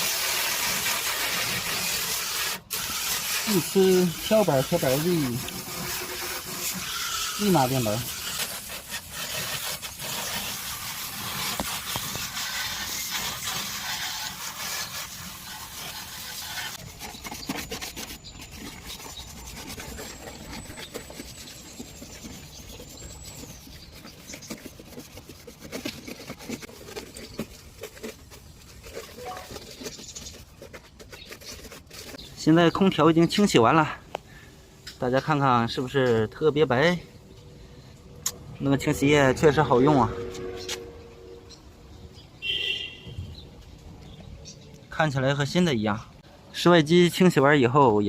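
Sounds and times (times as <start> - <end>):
scrubbing air conditioner casing: 0.0 - 33.6.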